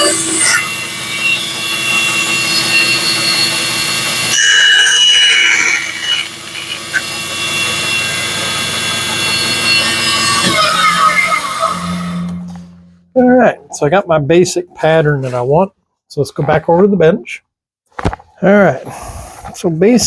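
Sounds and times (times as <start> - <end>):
bandsaw cutting: 0.0 - 12.9
motor hum: 0.0 - 13.4.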